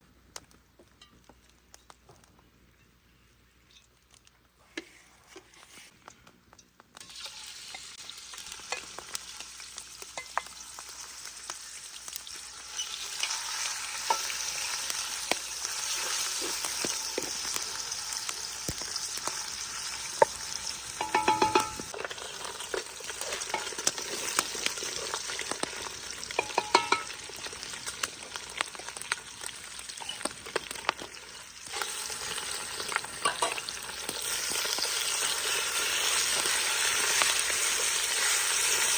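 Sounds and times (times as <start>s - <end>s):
food sizzling in hot oil: 7.0s - 38.9s
utensil clinking against pan: 21.0s - 21.9s, 26.4s - 27.2s, 33.2s - 33.6s.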